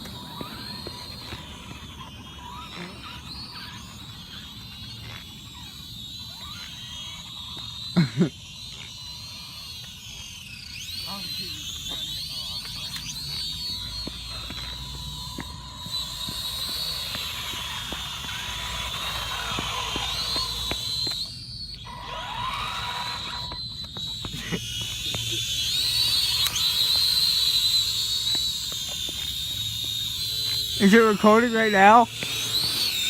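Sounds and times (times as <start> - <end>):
electric motor whining: 0.0 - 33.0.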